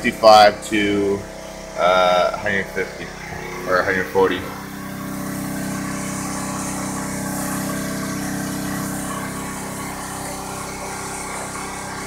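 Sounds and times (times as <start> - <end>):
portable generator running: 0.0 - 12.0.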